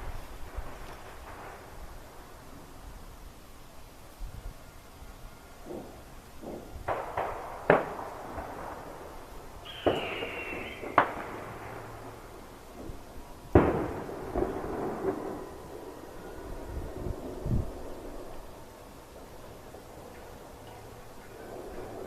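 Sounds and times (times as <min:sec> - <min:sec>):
fireworks banging: 0:00.0 - 0:03.0, 0:05.6 - 0:22.0
whistling firework: 0:00.0 - 0:03.5, 0:04.2 - 0:22.0.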